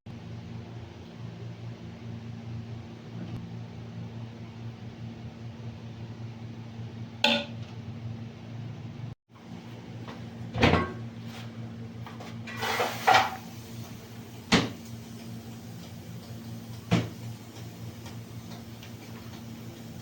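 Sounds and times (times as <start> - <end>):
pots and utensils clattering: 10.6 - 11.0, 12.5 - 13.5.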